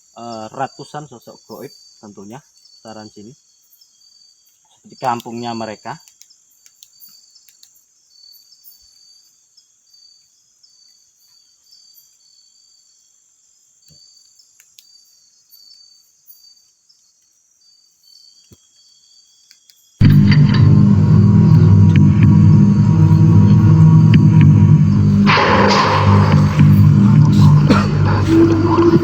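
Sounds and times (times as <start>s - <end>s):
crickets chirping: 0.0s - 20.0s
loud music: 20.0s - 29.0s.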